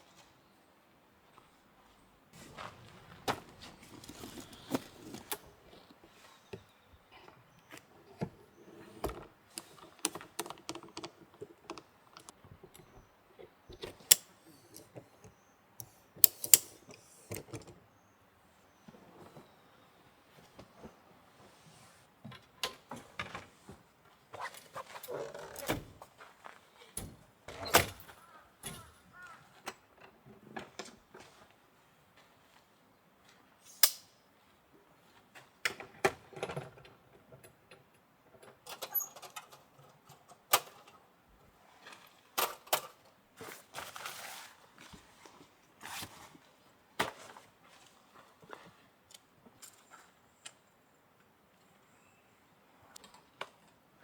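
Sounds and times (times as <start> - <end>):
rustling: 2.4 - 12.8
clicks knocks and clinks: 9.0 - 13.1.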